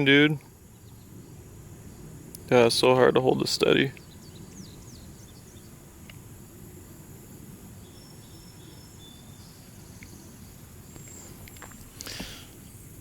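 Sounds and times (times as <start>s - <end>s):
low outdoor rumble: 0.0s - 13.0s
faint high-pitched chirps: 7.8s - 12.2s.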